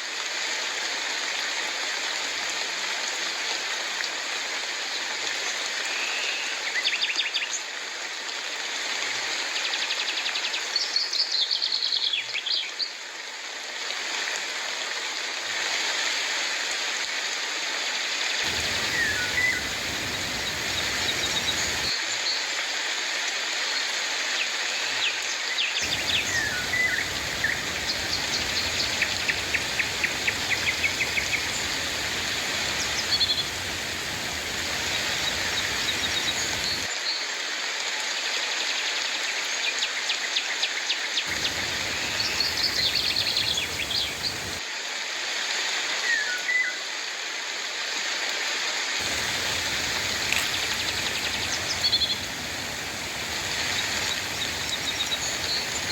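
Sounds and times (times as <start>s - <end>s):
steady rain: 13.2s - 23.7s, 25.8s - 38.4s, 41.2s - 45.8s, 47.6s - 55.9s
birds chirping and trilling: 18.5s - 21.9s, 25.8s - 36.9s, 41.3s - 44.6s, 49.0s - 55.9s.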